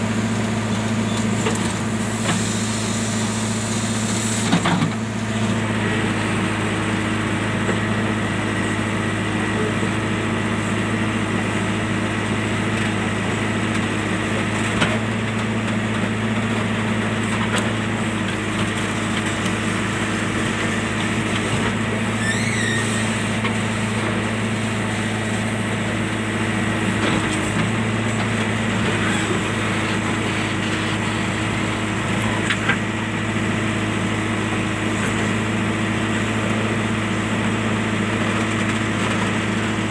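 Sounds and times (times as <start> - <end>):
machine engine running: 0.0 - 39.9.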